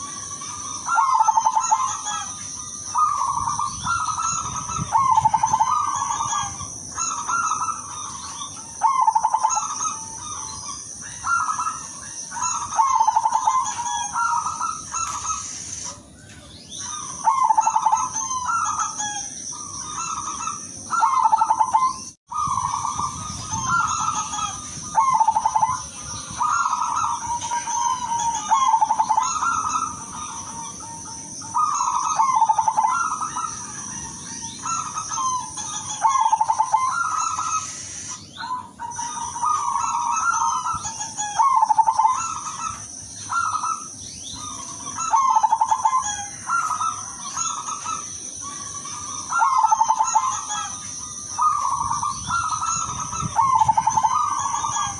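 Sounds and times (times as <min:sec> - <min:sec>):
doves cooing: 0:00.0 - 0:54.9
high-pitched hiss: 0:37.4 - 0:38.4.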